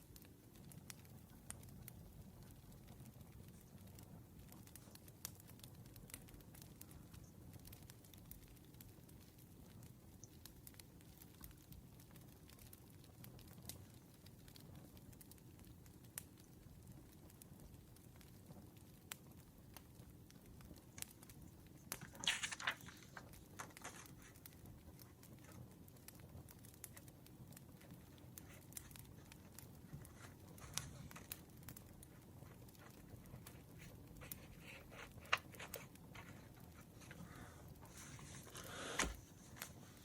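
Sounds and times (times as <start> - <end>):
campfire crackling: 0.0 - 40.0
paper rustling: 21.8 - 24.5, 28.4 - 31.4, 32.4 - 40.0.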